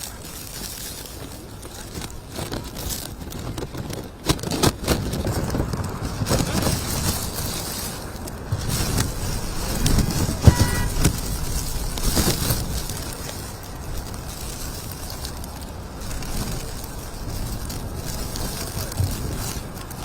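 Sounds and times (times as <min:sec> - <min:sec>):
wind on microphone: 0:00.0 - 0:20.0.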